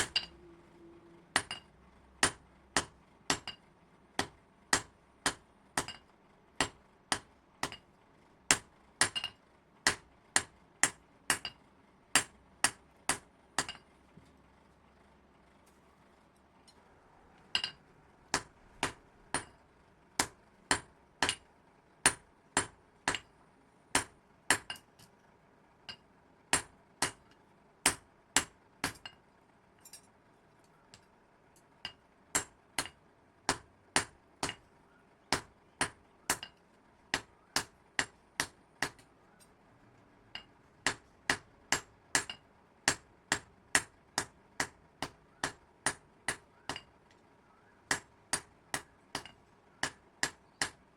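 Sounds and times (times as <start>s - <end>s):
hammer striking metal: 0.0s - 0.5s, 1.3s - 7.9s, 8.5s - 11.6s, 12.2s - 13.9s, 17.5s - 19.6s, 20.2s - 23.3s, 23.9s - 24.8s, 31.8s - 34.7s, 35.3s - 39.1s, 40.3s - 46.9s, 47.9s - 50.8s.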